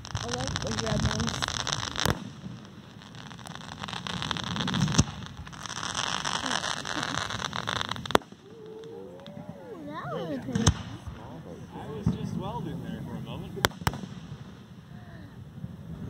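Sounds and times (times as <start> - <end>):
fireworks bangs: 0.0 - 16.0
fireworks crackling: 0.0 - 16.0.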